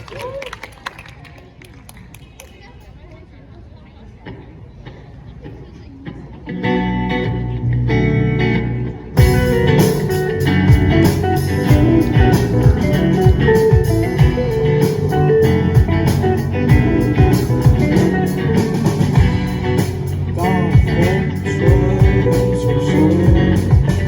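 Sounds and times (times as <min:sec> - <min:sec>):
electric guitars: 0:04.2 - 0:24.0
bass guitar: 0:06.5 - 0:24.0
drum kit beat: 0:09.2 - 0:24.0.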